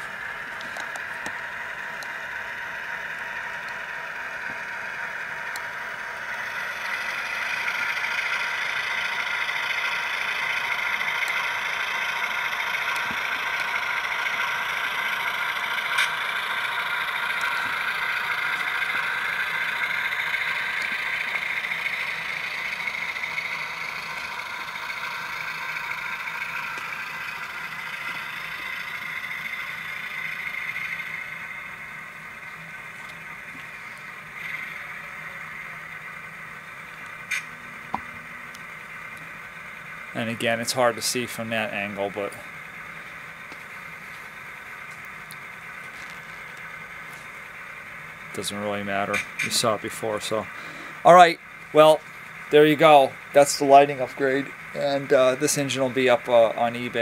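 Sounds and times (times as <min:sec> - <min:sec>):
tinny diesel engine sound from speaker: 0:00.0 - 0:57.0
sharp click: 0:37.3 - 0:38.0, 0:49.1 - 0:49.6.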